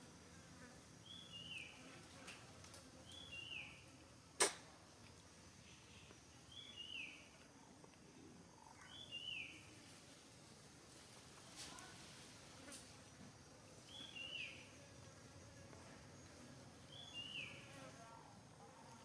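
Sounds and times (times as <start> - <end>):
sharp click: 4.4 - 4.7.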